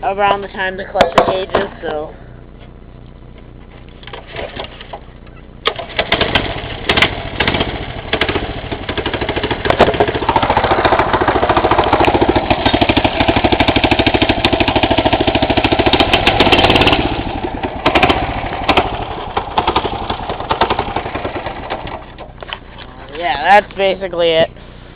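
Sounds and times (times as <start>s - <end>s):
small engine running: 4.2s - 22.4s.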